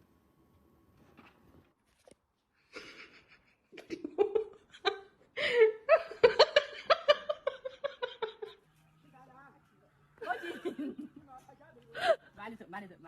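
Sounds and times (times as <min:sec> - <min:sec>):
person laughing: 0:02.7 - 0:08.6, 0:10.2 - 0:11.3.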